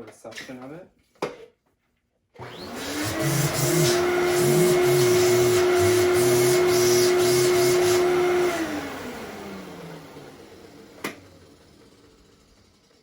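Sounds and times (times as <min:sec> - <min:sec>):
vacuum cleaner whining: 0:02.4 - 0:13.0
brush-roll belt on roller: 0:02.8 - 0:08.5.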